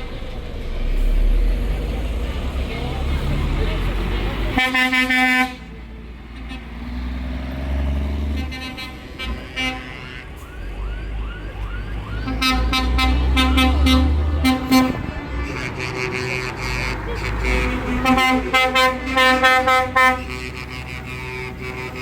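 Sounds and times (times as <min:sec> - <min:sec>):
low rumble of passing engines: 0:00.0 - 0:22.0
vehicle horns tooting: 0:04.2 - 0:07.0, 0:08.2 - 0:10.4, 0:12.2 - 0:22.0.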